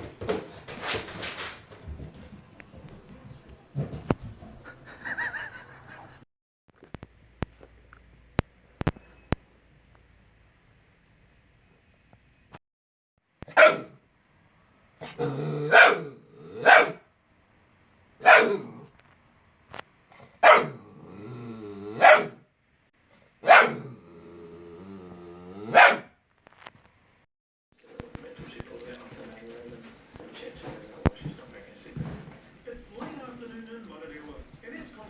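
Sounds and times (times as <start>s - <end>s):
puppy barking: 13.5s - 14.0s, 15.0s - 17.0s, 18.2s - 18.7s, 20.4s - 20.8s, 22.0s - 22.4s, 23.4s - 23.9s, 25.7s - 26.1s
dog growling: 15.0s - 16.7s, 18.4s - 19.0s, 20.6s - 22.3s, 23.6s - 25.9s.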